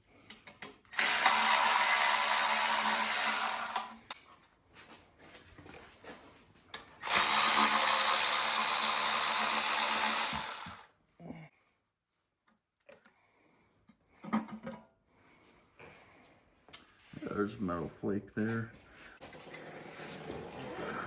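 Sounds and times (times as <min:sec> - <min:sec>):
power tool running: 0:01.0 - 0:04.2, 0:07.0 - 0:10.9.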